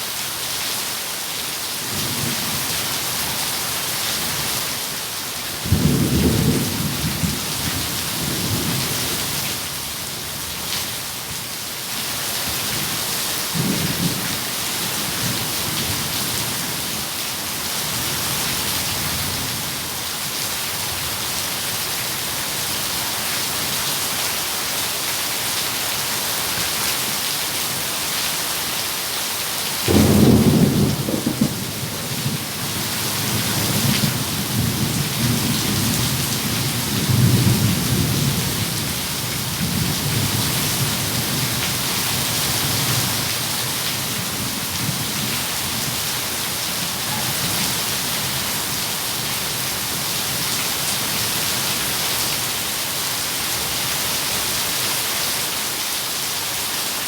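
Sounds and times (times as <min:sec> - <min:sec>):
rain hissing: 0:29.7 - 0:54.8
thunder rumbling: 0:29.9 - 0:38.7.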